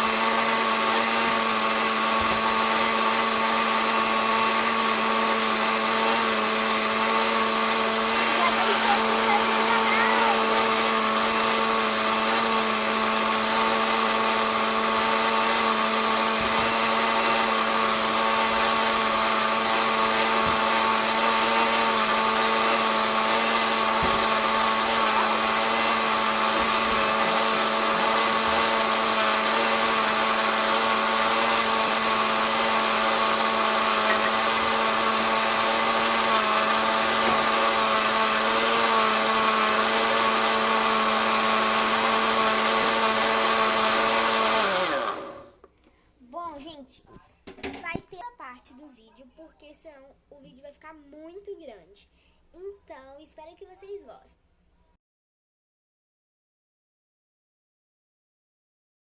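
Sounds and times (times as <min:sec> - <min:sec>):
kitchen blender running: 0:00.0 - 0:45.7.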